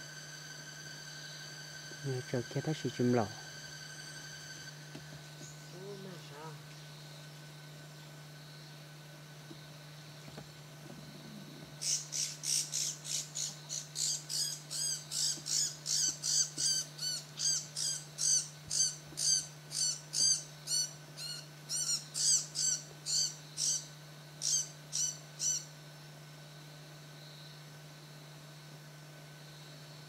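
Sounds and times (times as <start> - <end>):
bird calling sharp high calls: 11.8 - 25.7.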